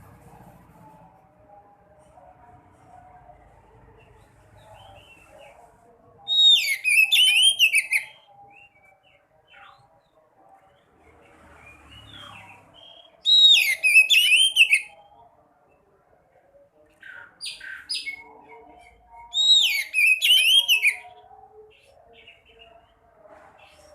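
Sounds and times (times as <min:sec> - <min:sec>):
songbird twittering song: 0:11.5 - 0:15.3, 0:16.8 - 0:23.0.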